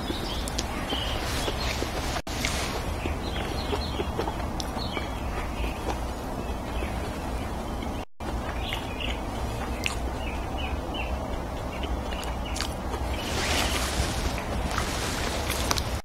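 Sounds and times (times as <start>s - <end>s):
chewing food: 0.0s - 16.0s
low steady rumble: 0.0s - 16.0s
wet mouth smacks and clicks: 8.5s - 10.1s, 11.3s - 13.1s.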